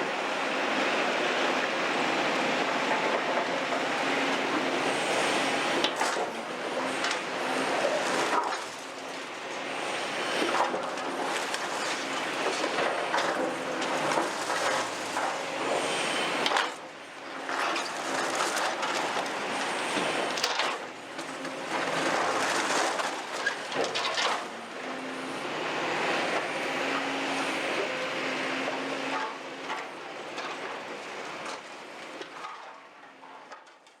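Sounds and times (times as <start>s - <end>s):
diesel engine hum: 0.0s - 32.0s
concrete rubble crunching and clattering: 10.4s - 24.6s, 29.1s - 34.0s.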